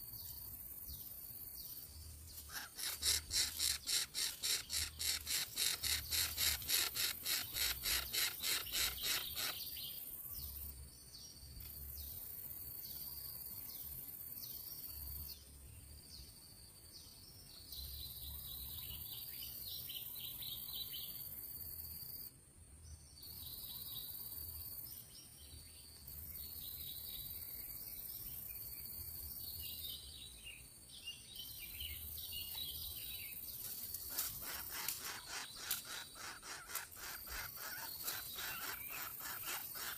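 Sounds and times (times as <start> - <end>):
bird chirps: 0.0 - 10.7, 25.5 - 39.9
insects buzzing: 0.0 - 15.4, 25.9 - 39.9.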